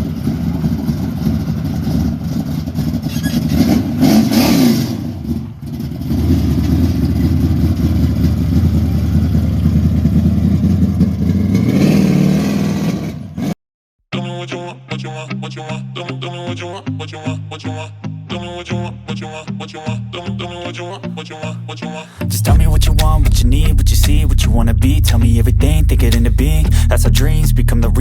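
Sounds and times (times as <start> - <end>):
car engine revving: 0.0 - 13.2, 22.1 - 28.0.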